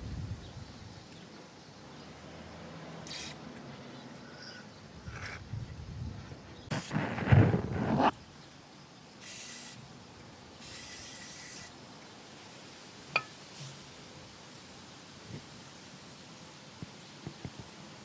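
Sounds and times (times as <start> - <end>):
aerosol spray hissing: 9.2 - 9.9, 10.6 - 11.7.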